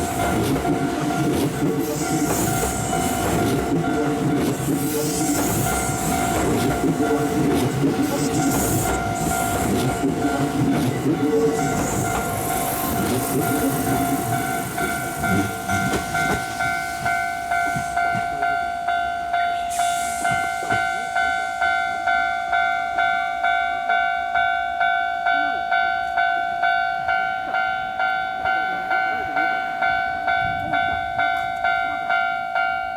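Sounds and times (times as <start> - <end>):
train passing: 0.0 - 32.8.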